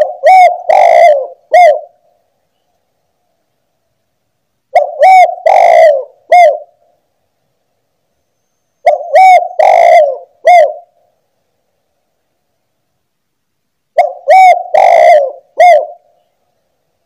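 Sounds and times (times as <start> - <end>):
dove cooing: 0.0 - 2.1, 4.7 - 6.9, 8.8 - 11.1, 14.0 - 16.3.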